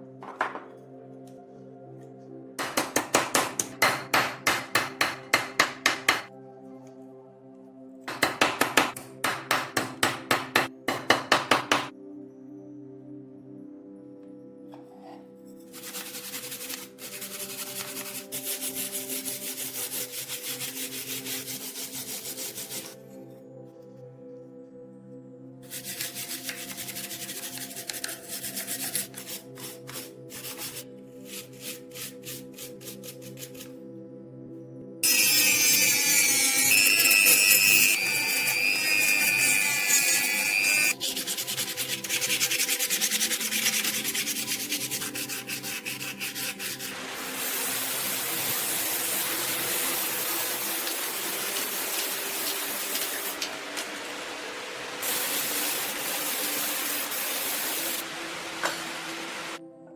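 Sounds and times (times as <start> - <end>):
background music: 0.0 - 59.9
knife scraping on abrasive: 15.6 - 23.0, 25.7 - 33.7, 35.0 - 47.5.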